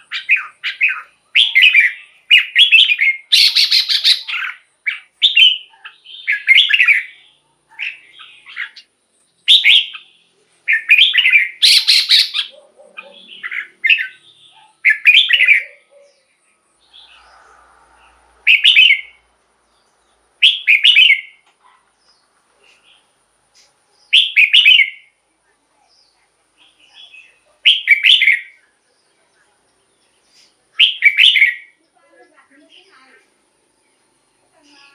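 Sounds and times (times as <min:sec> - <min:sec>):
bird singing whistled phrases: 0:00.0 - 0:07.2, 0:09.5 - 0:10.1, 0:10.7 - 0:12.5, 0:13.2 - 0:15.8, 0:18.4 - 0:19.2, 0:20.4 - 0:21.4, 0:24.1 - 0:25.1, 0:27.6 - 0:28.5, 0:30.8 - 0:31.8.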